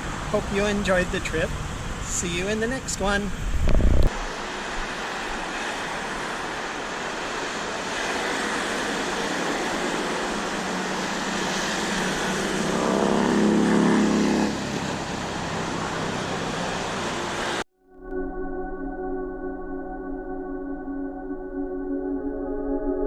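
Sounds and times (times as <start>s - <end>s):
road traffic noise: 0.0s - 17.7s
vehicle passing by: 4.2s - 17.6s.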